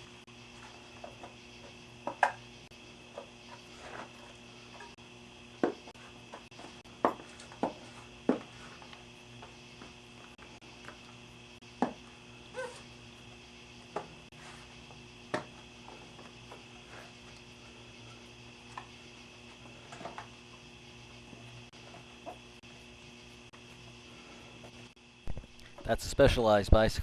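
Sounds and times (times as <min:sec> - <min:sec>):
steady hum: 0:00.0 - 0:27.0
knocks and clicks of bicycle parts: 0:02.0 - 0:02.4, 0:05.6 - 0:08.5.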